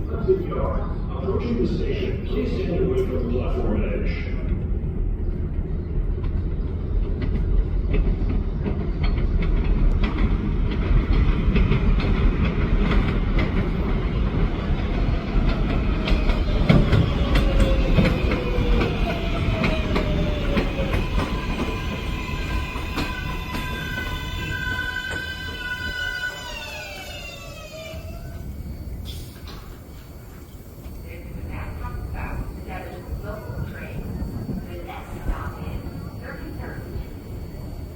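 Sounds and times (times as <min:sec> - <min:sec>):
subway train rumble: 0:00.0 - 0:37.9
wheels clacking over rail joints: 0:07.1 - 0:25.6
steady high-pitched tones: 0:15.6 - 0:37.9.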